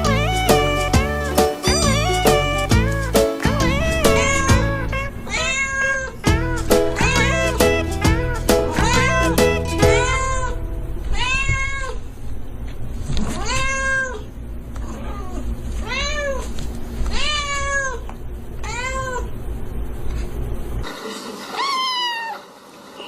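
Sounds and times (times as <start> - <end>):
steady low hum: 0.0 - 13.2
cat meowing: 1.6 - 2.5, 3.5 - 7.6, 8.7 - 12.0.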